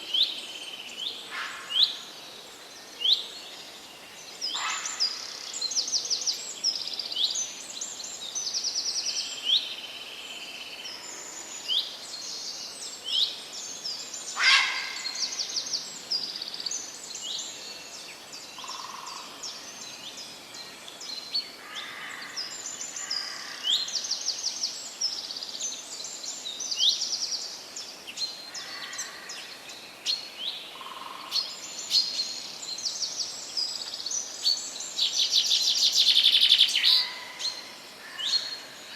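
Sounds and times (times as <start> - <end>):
faint steady hiss: 0.0 - 38.9
songbirds chirping and trilling: 0.0 - 38.9.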